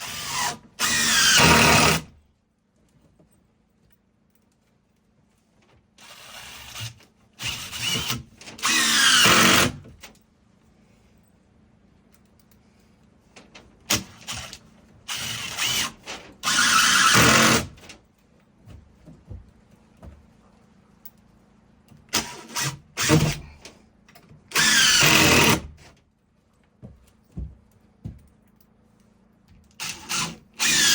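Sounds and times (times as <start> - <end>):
power drill whining: 0.0 - 2.1, 6.0 - 9.8, 15.1 - 17.8, 22.1 - 23.5, 24.5 - 25.7, 29.8 - 30.9.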